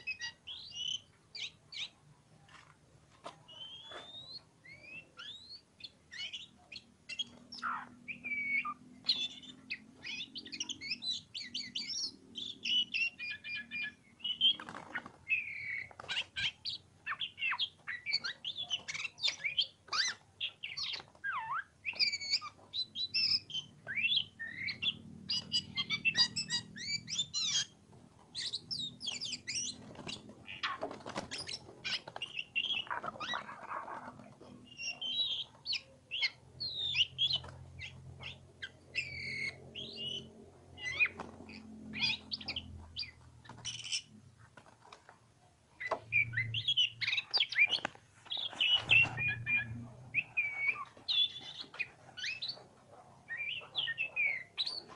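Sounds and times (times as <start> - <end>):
bird singing chirps and whistles: 0.0 - 1.9, 3.5 - 27.7, 34.7 - 41.2, 45.8 - 52.6, 53.3 - 54.9.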